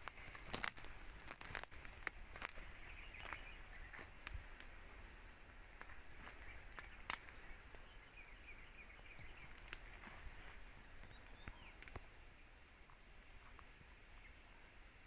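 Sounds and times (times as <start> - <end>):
sharp clicks and crackles: 0.0 - 7.9, 9.0 - 10.2, 11.0 - 12.1
faint bird chirps: 0.2 - 5.3, 5.9 - 14.9.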